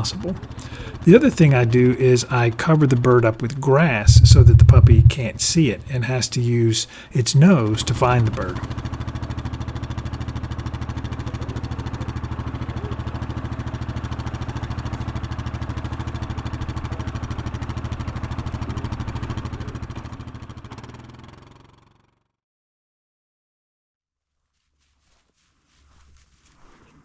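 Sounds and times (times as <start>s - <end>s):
engine running with rapid pulse: 3.9s - 5.6s.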